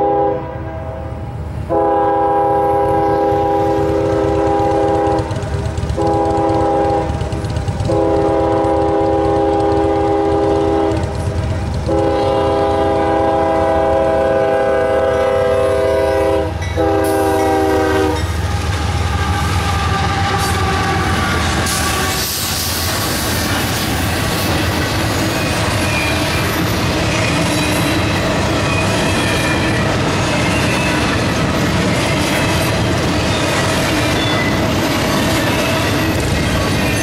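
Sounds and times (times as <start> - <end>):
locomotive horn blasts: 0.0 - 11.2, 11.8 - 18.4, 19.2 - 22.4
train cars rumbling over rails: 0.0 - 37.0.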